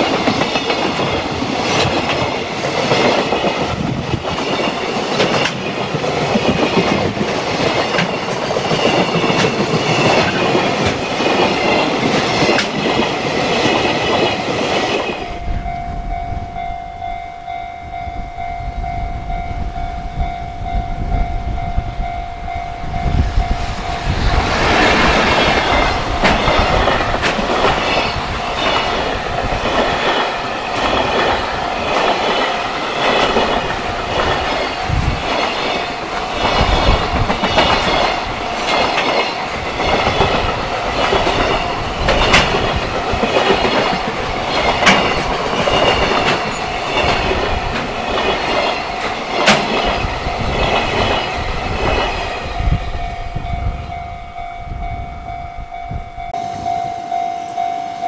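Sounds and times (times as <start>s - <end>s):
train wheels clacking over rail joints: 0.0s - 15.3s, 24.2s - 52.5s
wind buffeting the microphone: 0.0s - 57.7s.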